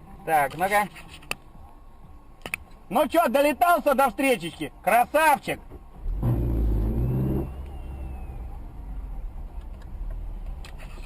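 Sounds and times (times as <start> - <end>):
road noise: 0.0 - 11.0
car engine pulling hard: 6.0 - 8.7.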